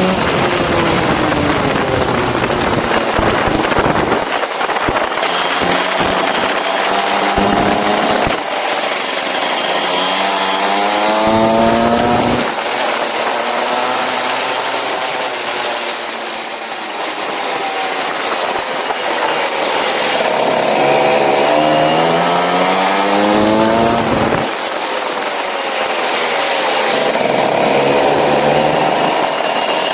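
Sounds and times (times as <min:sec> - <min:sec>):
go-kart engine revving: 0:00.0 - 0:29.9.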